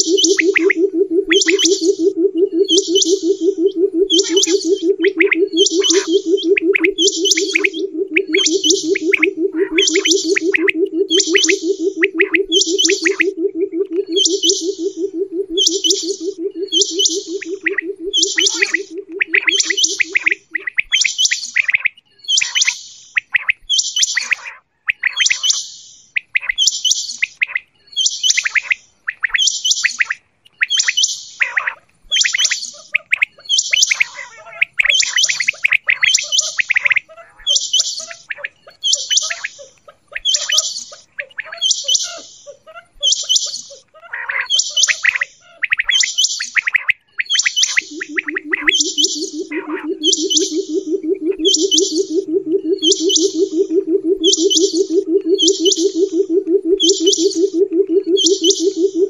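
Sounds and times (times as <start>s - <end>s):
low pulsing tone: 0.0s - 20.5s, 47.6s - 59.0s
quail calling: 0.0s - 21.0s, 31.4s - 59.0s.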